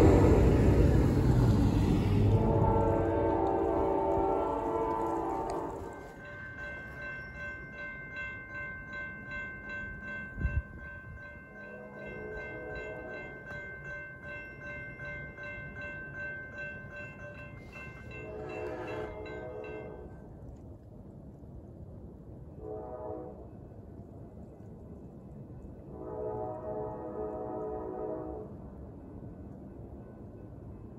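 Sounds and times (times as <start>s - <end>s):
train horn: 0.0s - 6.8s, 11.5s - 13.6s, 17.6s - 20.3s, 22.6s - 23.7s, 25.9s - 28.7s
railroad crossing bell ringing: 0.0s - 20.4s.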